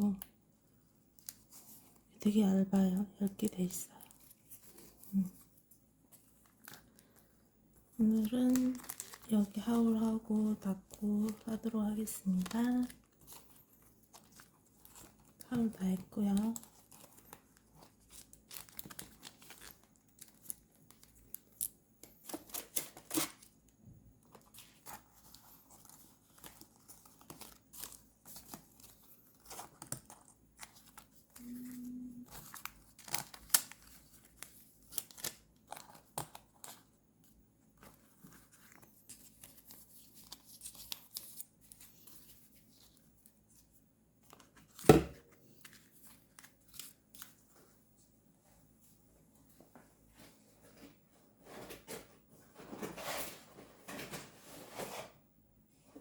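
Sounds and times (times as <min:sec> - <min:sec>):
paper rustling and tearing: 0:08.0 - 0:09.3, 0:16.4 - 0:23.5, 0:24.3 - 0:36.9.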